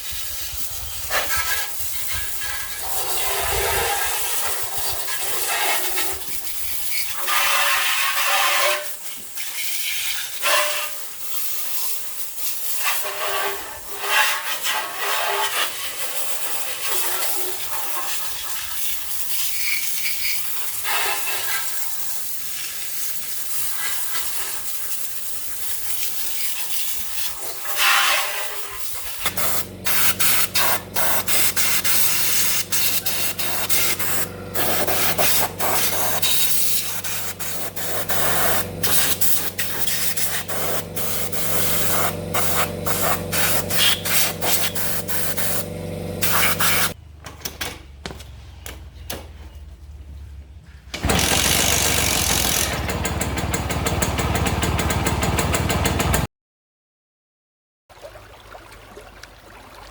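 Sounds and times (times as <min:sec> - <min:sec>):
hissing spray: 0:00.0 - 0:47.0
machine hum: 0:29.2 - 0:47.0, 0:51.0 - 0:56.2.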